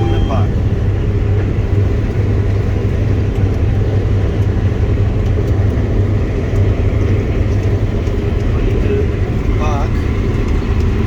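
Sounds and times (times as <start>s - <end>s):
combine harvester engine drone: 0.0s - 11.0s.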